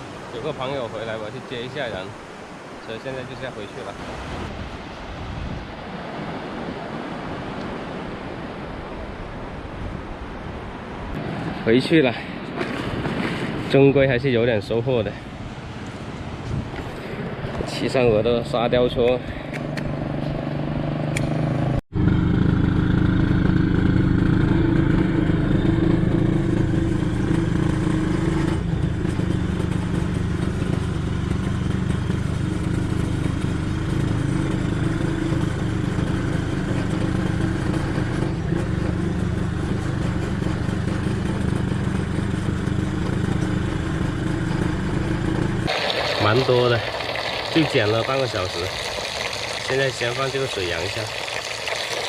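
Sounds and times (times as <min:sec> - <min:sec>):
atv engine running: 0:19.5 - 0:52.0.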